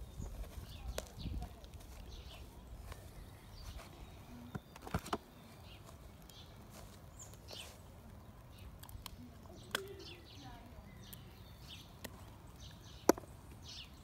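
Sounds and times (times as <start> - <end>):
faint outdoor ambience: 0.0 - 14.0
bird chirps: 8.5 - 14.0
sharp clicks: 8.6 - 10.2.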